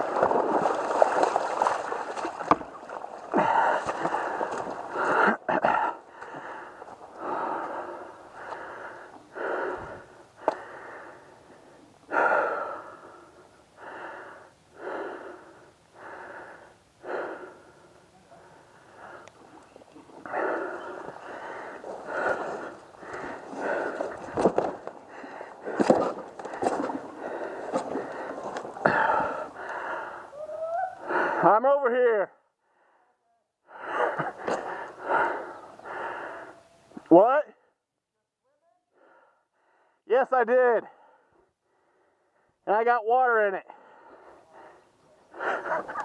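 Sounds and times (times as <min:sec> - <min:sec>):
person breathing hard: 0:03.3 - 0:19.4, 0:20.2 - 0:30.4, 0:31.0 - 0:31.4, 0:32.6 - 0:36.7, 0:38.9 - 0:40.0, 0:40.9 - 0:42.6, 0:43.7 - 0:46.0.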